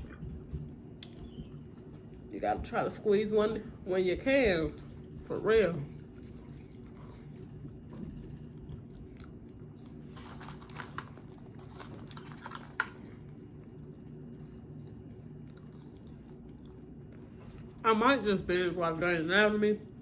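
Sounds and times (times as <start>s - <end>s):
low hum: 0.0s - 20.0s
person chewing food: 4.7s - 17.8s.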